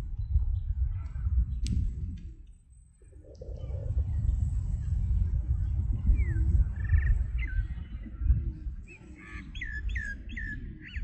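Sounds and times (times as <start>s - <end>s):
steady low rumble: 0.0s - 10.3s
birds chirping: 5.6s - 11.0s.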